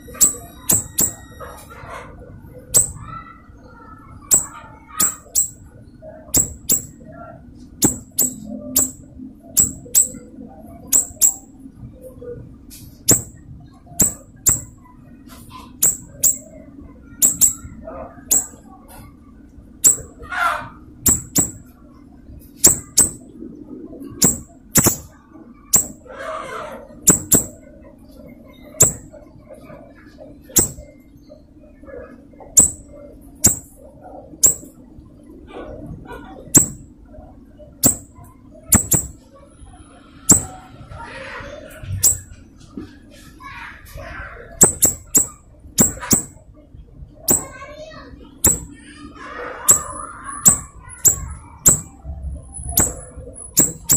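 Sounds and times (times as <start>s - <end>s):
songbird chip notes: 0.0s - 1.4s, 4.3s - 5.6s, 7.8s - 10.3s, 10.9s - 11.5s, 14.0s - 14.8s, 15.8s - 16.5s, 17.2s - 17.7s, 18.3s - 18.6s, 21.1s - 21.6s, 22.6s - 23.2s, 24.2s - 25.1s, 44.6s - 46.4s.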